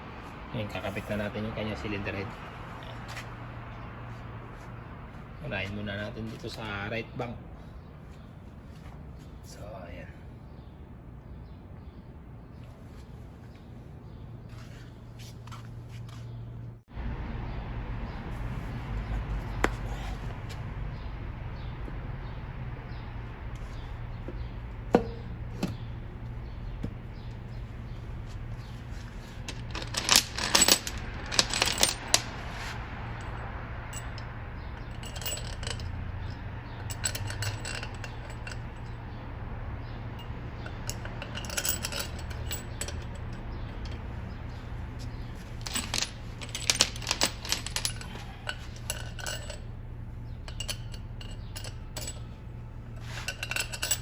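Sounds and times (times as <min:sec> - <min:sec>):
metal tools clinking and rattling: 0:24.4 - 0:25.9, 0:28.6 - 0:39.1, 0:40.1 - 0:54.0.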